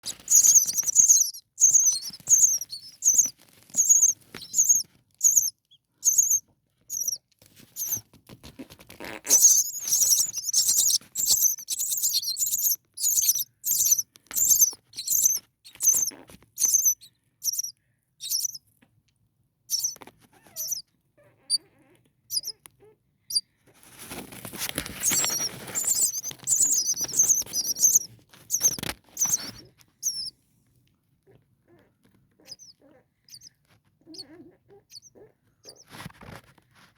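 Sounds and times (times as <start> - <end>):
nestlings cheeping: 0.0 - 7.2, 7.8 - 8.0, 9.1 - 18.6, 19.7 - 20.8, 22.3 - 22.6, 24.1 - 30.3, 32.4 - 33.5
rustling: 0.0 - 17.7, 23.7 - 30.4, 35.6 - 36.9.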